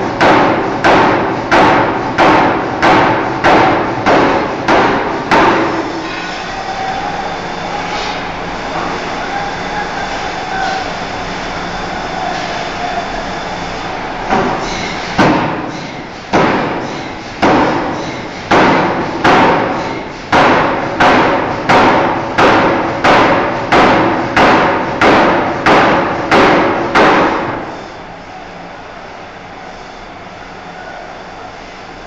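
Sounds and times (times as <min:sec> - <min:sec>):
forging hammer beating steel: 0:00.0 - 0:06.4, 0:14.3 - 0:27.7
shop machinery: 0:00.0 - 0:32.0.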